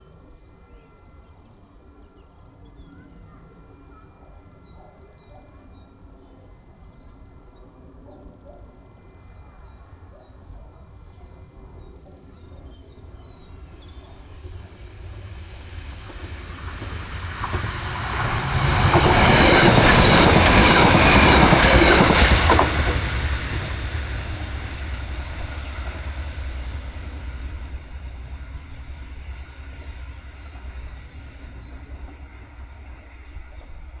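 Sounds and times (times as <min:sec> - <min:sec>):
train passing at speed: 0:05.6 - 0:34.0
train wheel clacks: 0:14.4 - 0:28.0.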